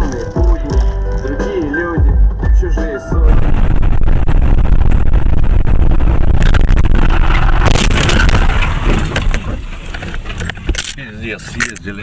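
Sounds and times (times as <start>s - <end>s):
sharp bangs and clatters: 3.3s - 10.9s
car crash rumbling and scraping: 3.3s - 11.0s.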